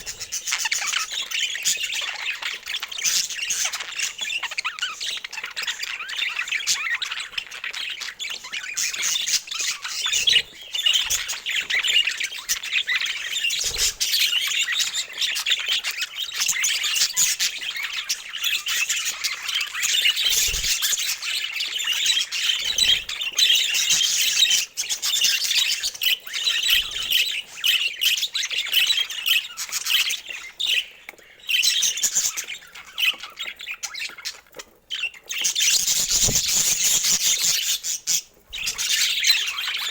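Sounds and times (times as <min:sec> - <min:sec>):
budgerigars chattering and chirping: 0:00.0 - 0:39.9
soft thumps: 0:36.1 - 0:36.8.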